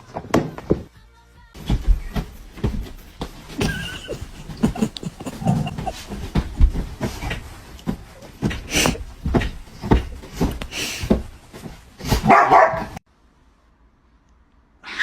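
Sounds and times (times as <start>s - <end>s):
dog barking: 12.2s - 13.0s.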